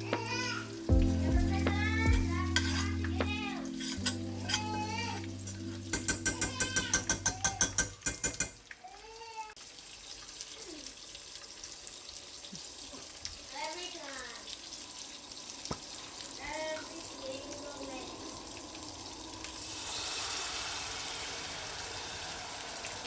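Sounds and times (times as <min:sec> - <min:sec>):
utensil tapping against pan: 0:00.0 - 0:04.8, 0:05.8 - 0:08.6
background music: 0:00.0 - 0:08.0
faint frying sizzle: 0:00.0 - 0:23.0.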